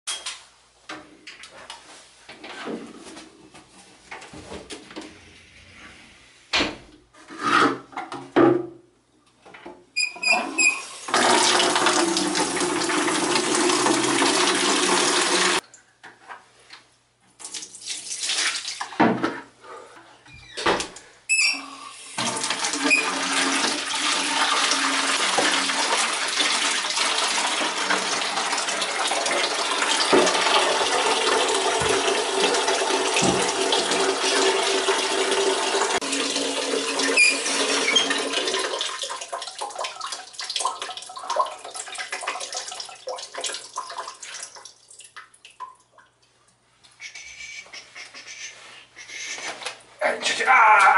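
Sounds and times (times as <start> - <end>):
tap water running into sink: 10.3 - 15.6, 22.2 - 45.8.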